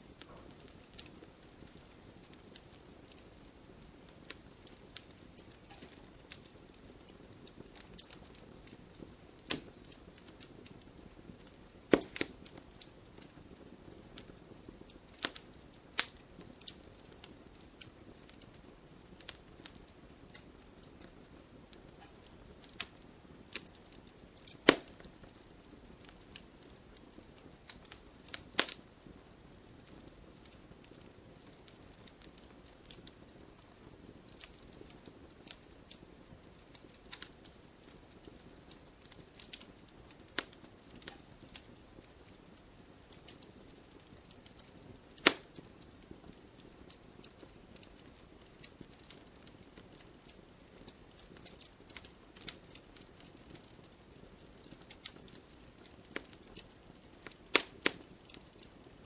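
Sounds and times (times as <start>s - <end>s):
campfire burning: 0.0s - 59.0s
small fire crackles: 0.0s - 59.0s
loud sharp fire pops: 9.4s - 10.8s, 11.4s - 18.0s, 24.4s - 25.5s, 45.2s - 45.7s, 57.2s - 58.7s.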